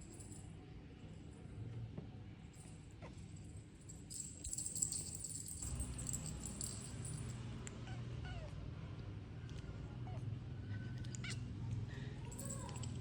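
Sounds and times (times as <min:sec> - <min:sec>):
metallic jingling and rattling: 0:03.4 - 0:07.5, 0:12.2 - 0:13.0.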